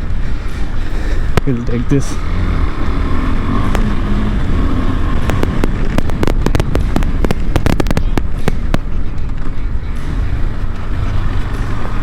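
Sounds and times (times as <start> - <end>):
motorcycle engine rumbling: 0.0 - 12.0
sharp clicks and knocks: 5.1 - 9.5.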